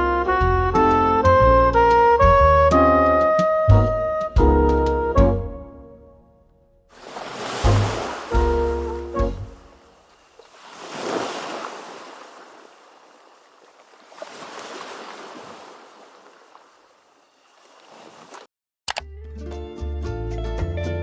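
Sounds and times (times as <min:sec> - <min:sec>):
sea waves washing on shore: 0:06.9 - 0:18.5.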